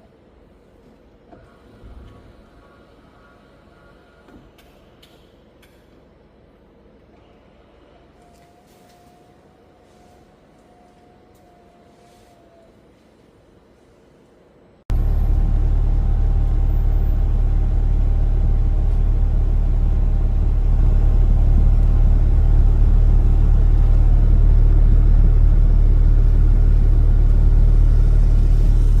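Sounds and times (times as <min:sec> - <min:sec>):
car engine rumbling: 0:14.5 - 0:29.0.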